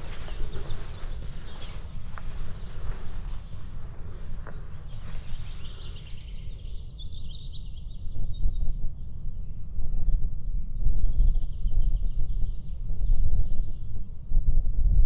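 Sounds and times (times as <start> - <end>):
steady low rumble: 0.0 - 6.6
small songbirds chirping: 0.0 - 10.3.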